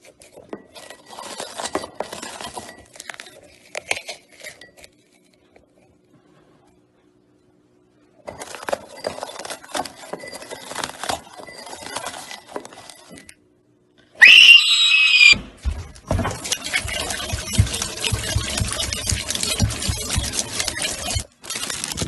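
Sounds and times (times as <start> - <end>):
high-pitched scream: 14.2 - 15.4.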